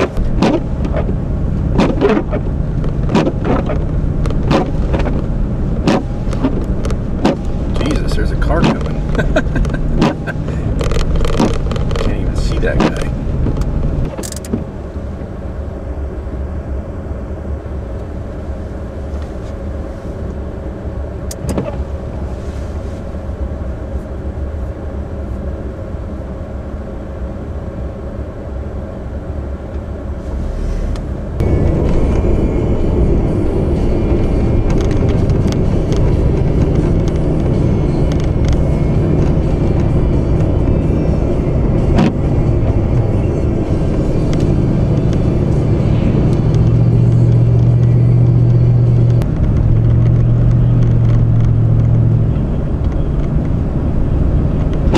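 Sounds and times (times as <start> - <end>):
car driving on snowy road: 0.0 - 54.9.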